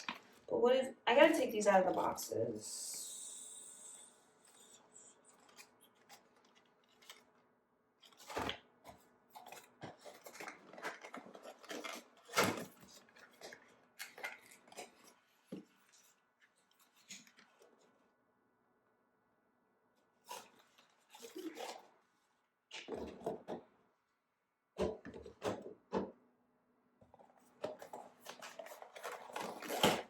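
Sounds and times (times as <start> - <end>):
packaging rustling: 4.5 - 7.3, 8.0 - 17.7, 20.3 - 21.9, 27.2 - 30.0
objects clattering: 27.1 - 30.0.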